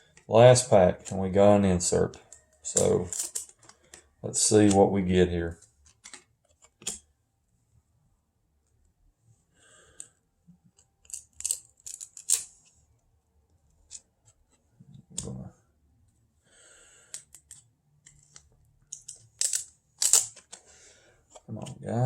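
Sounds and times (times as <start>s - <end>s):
cards snapping and rustling: 5.8s - 7.0s, 18.2s - 20.7s.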